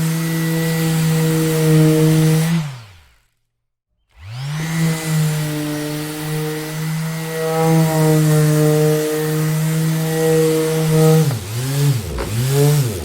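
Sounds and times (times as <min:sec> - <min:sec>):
orbital sander motor: 0:04.2 - 0:13.0.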